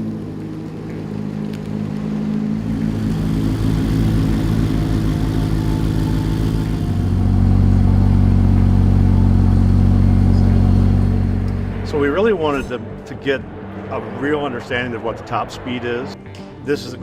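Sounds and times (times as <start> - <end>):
sports car engine drone: 0.0 - 16.2.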